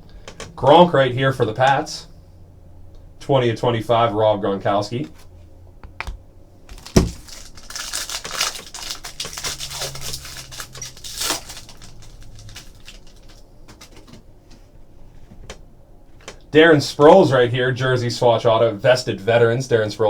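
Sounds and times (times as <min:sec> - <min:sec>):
card packaging crinkling: 0:06.7 - 0:14.3.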